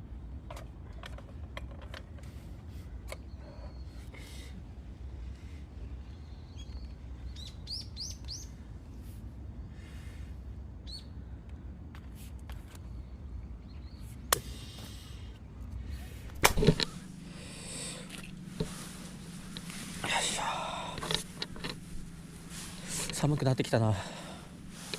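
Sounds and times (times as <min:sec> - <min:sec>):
low outdoor rumble: 0:00.0 - 0:24.9
low steady hum: 0:00.0 - 0:24.9
small birds chirping: 0:03.0 - 0:04.6, 0:05.3 - 0:08.7, 0:10.8 - 0:11.2, 0:12.9 - 0:15.4, 0:16.8 - 0:24.9.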